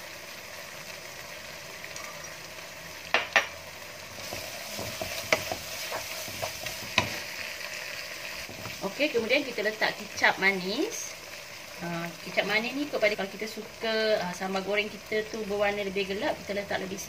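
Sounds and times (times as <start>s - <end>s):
sauce sizzling in a wok: 0.0s - 17.0s
wooden spatula knocking on pan: 3.1s - 3.5s, 4.3s - 7.2s.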